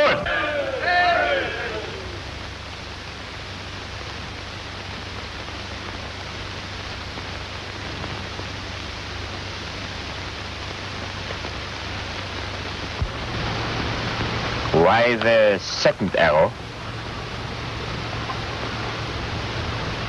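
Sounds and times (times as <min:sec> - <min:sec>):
film soundtrack hiss and hum: 0:00.0 - 0:20.0.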